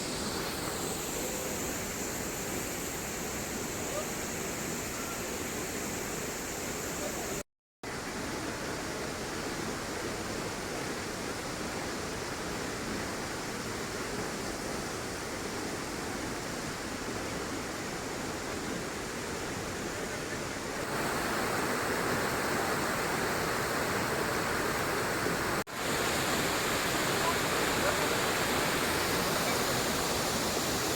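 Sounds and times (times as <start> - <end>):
waterfall rushing: 19.6 - 30.9.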